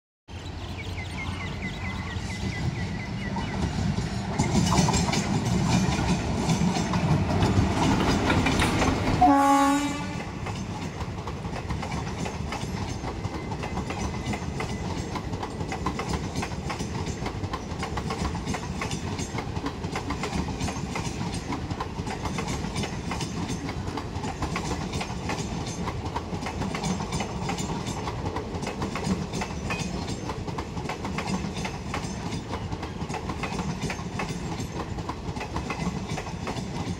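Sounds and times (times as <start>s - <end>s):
train wheels rumbling and clattering: 0.5s - 36.9s
train horn blast: 9.2s - 10.4s.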